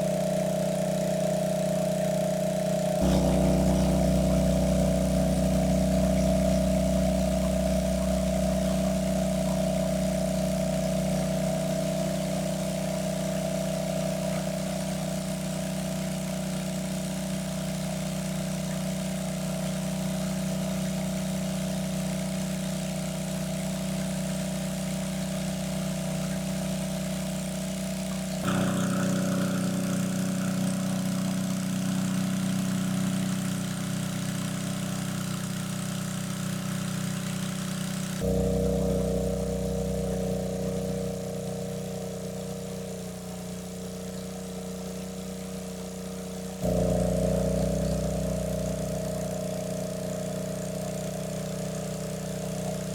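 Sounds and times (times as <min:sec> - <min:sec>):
small engine droning: 0:00.0 - 0:52.9.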